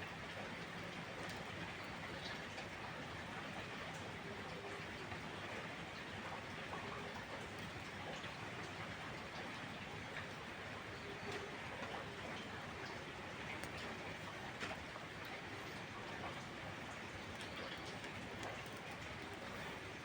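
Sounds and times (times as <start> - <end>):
steady rain falling: 0.0 - 20.0
small clicks and pops: 17.3 - 19.6.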